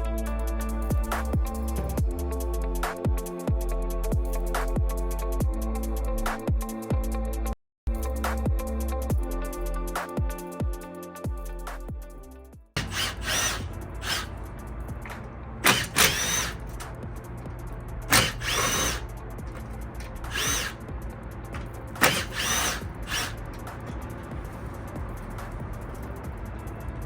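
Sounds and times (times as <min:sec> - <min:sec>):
electric drill whining: 0:12.8 - 0:14.4, 0:15.6 - 0:16.7, 0:18.1 - 0:19.1, 0:20.2 - 0:20.8, 0:22.0 - 0:23.4.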